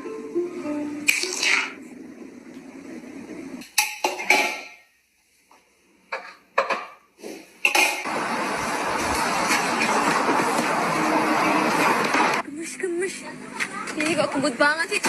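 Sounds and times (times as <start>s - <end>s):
steady rushing noise: 8.1s - 12.4s.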